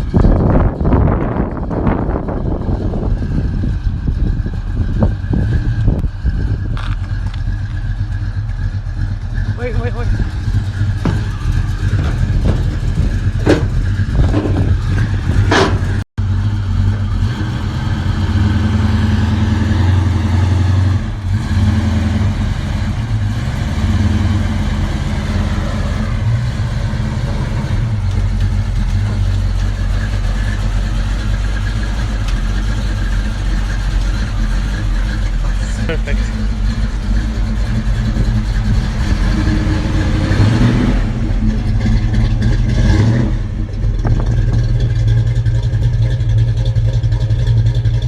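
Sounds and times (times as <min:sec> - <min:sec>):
engine running with deep note: 0:00.0 - 0:48.0
sharp knocks: 0:10.3 - 0:16.0.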